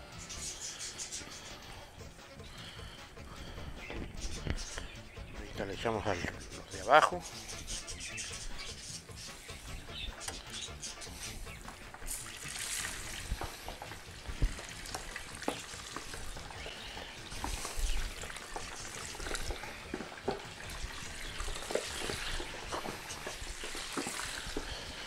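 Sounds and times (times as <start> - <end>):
pork skin sizzling in lard: 10.2 - 25.0.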